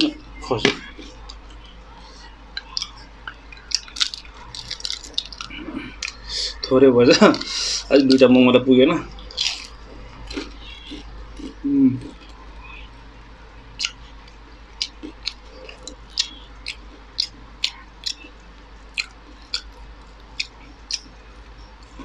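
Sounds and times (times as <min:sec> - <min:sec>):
mouth clicks and smacks chewing: 0:00.8 - 0:06.2, 0:09.1 - 0:12.9, 0:13.8 - 0:21.2.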